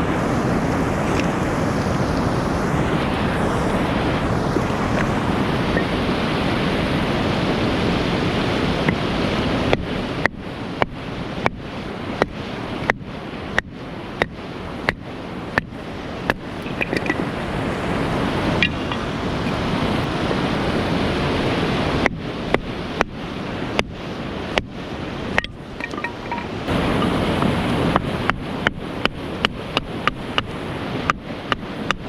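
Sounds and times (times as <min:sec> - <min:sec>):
steady rushing noise: 0:00.0 - 0:32.0.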